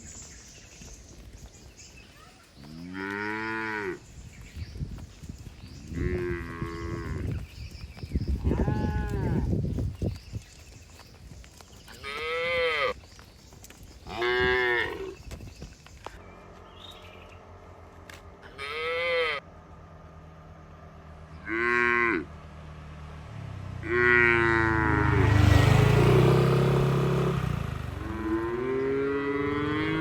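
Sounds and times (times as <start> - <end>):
cattle mooing: 2.7 - 4.0, 18.4 - 19.4, 21.4 - 22.3, 23.8 - 25.3, 28.1 - 30.0
low steady engine drone: 16.2 - 25.4.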